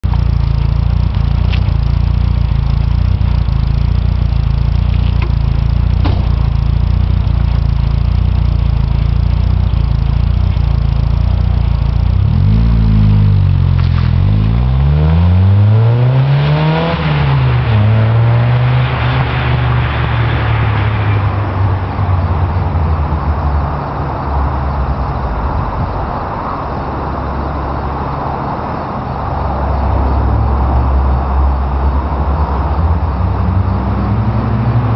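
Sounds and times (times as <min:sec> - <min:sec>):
car engine idling and revving: 0:00.0 - 0:34.9.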